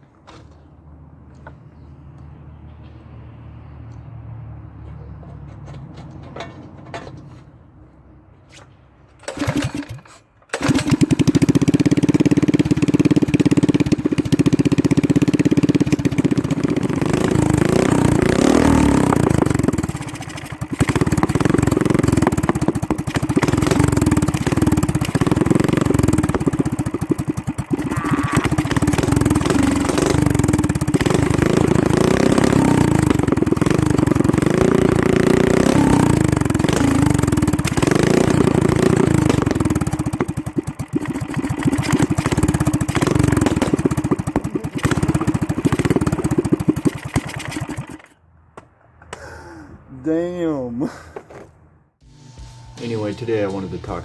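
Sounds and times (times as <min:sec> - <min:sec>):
small engine revving: 0:09.2 - 0:48.2.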